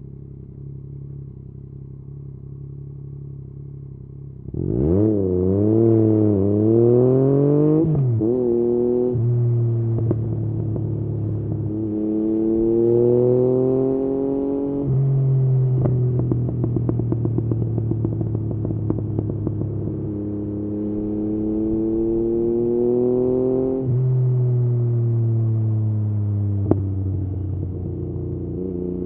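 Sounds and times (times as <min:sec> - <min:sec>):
motorcycle engine revving: 0:04.4 - 0:29.0
exhaust pops and crackles: 0:10.0 - 0:11.0, 0:15.8 - 0:20.0, 0:26.6 - 0:26.9.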